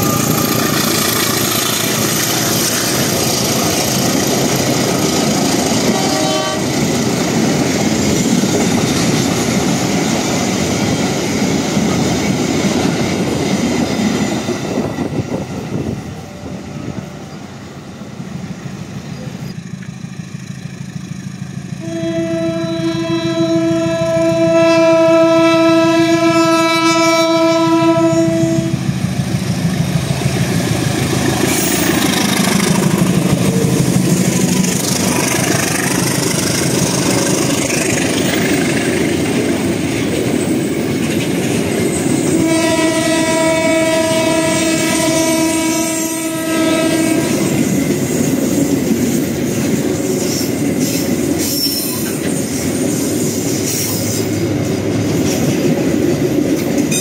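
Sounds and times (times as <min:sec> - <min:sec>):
train wheels on rails: 0:00.0 - 0:57.0
train horn blast: 0:05.8 - 0:06.8, 0:21.7 - 0:28.8, 0:42.3 - 0:47.7.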